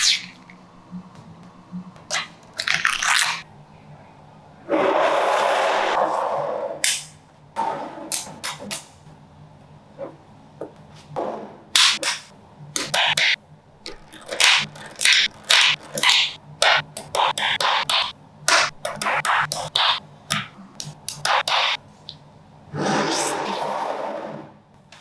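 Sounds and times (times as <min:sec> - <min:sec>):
magnetic balls clicking together: 0:11.8 - 0:22.2.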